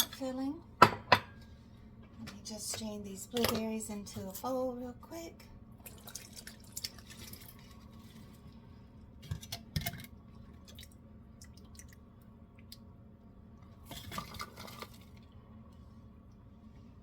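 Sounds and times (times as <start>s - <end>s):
faint water dripping: 5.8s - 7.9s, 10.6s - 12.9s.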